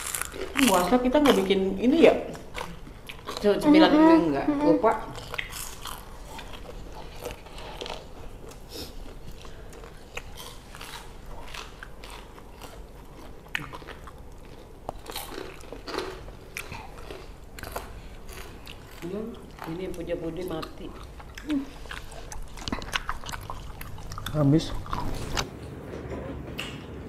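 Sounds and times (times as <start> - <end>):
people chewing crunchy snacks: 0.0 - 1.5, 2.3 - 3.7, 4.9 - 25.4
wet mouth sounds: 20.6 - 25.4.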